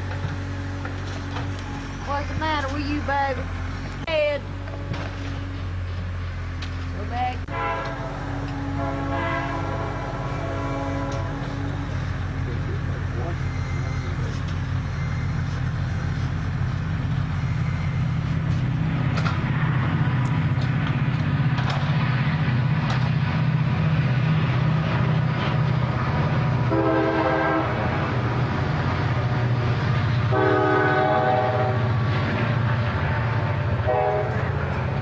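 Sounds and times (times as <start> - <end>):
backhoe engine running: 0.0 - 35.0
loud horn-like tone: 7.5 - 11.9, 26.7 - 27.8, 30.3 - 31.9, 33.8 - 34.5.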